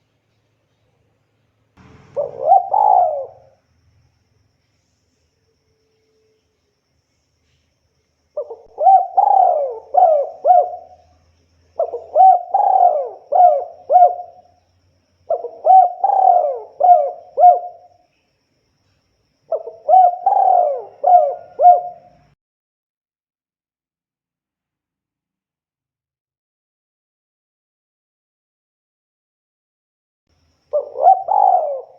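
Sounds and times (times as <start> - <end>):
dove cooing: 1.8 - 3.6, 8.4 - 11.2, 11.8 - 14.6, 15.3 - 17.9, 19.5 - 22.4, 30.7 - 31.9.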